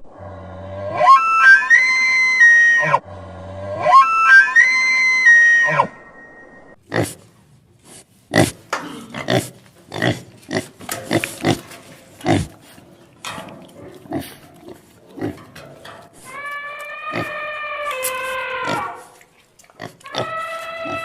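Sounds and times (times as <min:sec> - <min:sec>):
farm animal grunting: 0:06.9 - 0:21.0
long drawn-out animal call: 0:16.2 - 0:19.2, 0:20.0 - 0:21.0.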